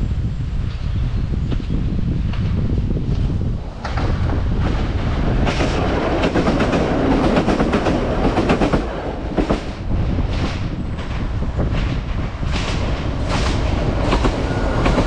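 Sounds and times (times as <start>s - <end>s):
train passing at speed: 0.0s - 15.0s
wheels clacking over rail joints: 3.7s - 15.0s.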